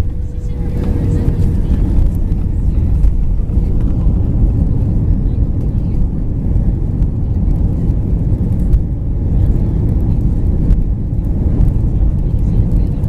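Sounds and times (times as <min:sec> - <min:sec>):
low rumble of plane taxiing: 0:00.0 - 0:13.0.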